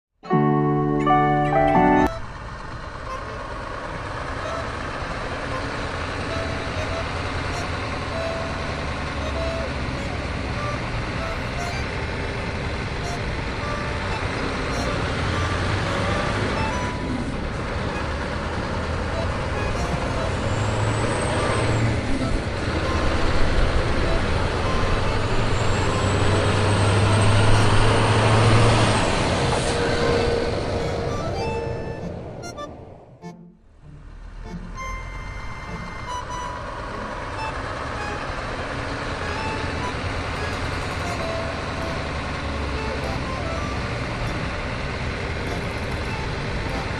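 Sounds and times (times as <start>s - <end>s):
truck engine rumble: 0.3s - 46.9s
short beeping tones: 6.2s - 11.9s, 13.0s - 17.3s, 30.0s - 33.6s, 34.5s - 38.3s.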